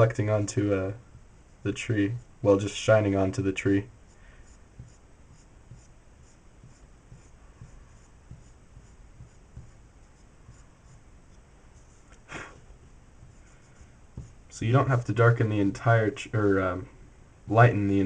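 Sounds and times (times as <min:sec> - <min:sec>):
eraser rubbing on paper: 0:04.1 - 0:11.0, 0:11.7 - 0:12.1, 0:13.2 - 0:14.5.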